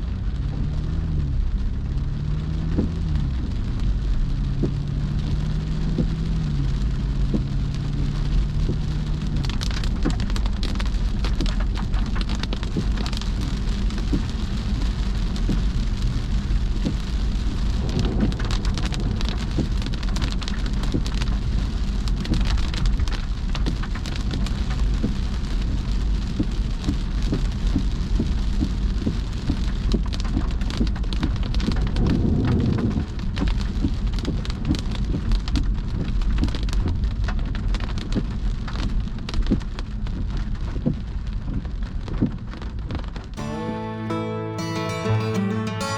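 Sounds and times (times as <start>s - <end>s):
steady low rumble: 0.0s - 29.9s
rain drops ticking on a car: 0.0s - 43.4s.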